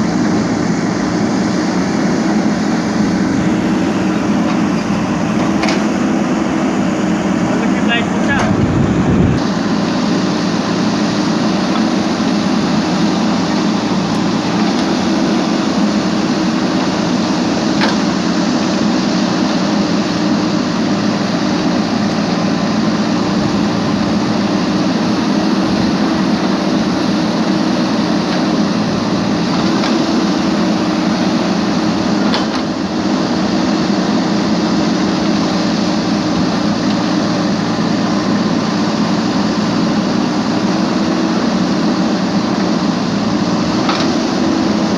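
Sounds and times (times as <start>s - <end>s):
steady machine hum: 0.0s - 17.7s.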